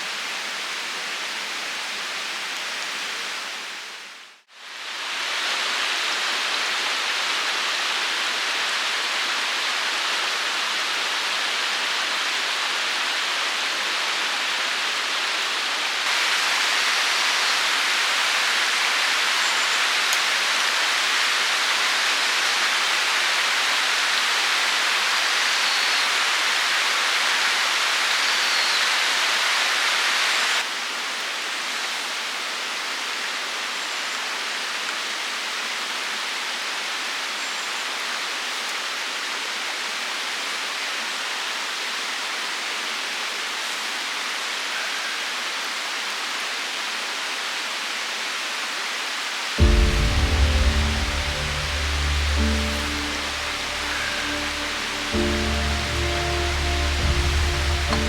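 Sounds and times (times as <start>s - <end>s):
steady rushing noise: 49.6s - 58.0s.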